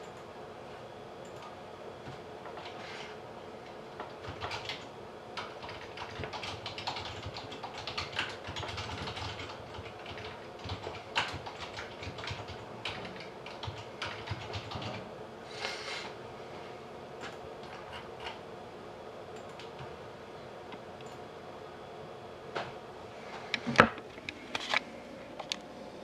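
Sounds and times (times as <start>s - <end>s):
typing on keyboard: 4.0s - 15.0s.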